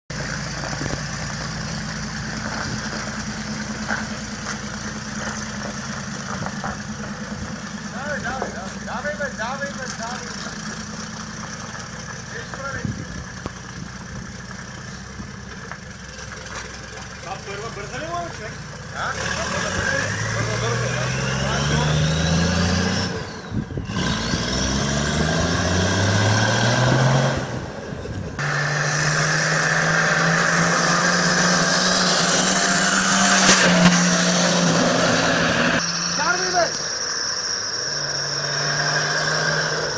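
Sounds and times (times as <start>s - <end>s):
engine idling: 0.1s - 19.2s
engine revving: 0.1s - 39.9s.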